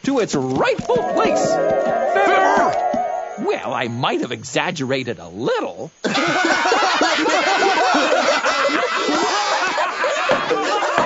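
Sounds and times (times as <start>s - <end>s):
cartoon voices laughing: 6.0s - 11.0s.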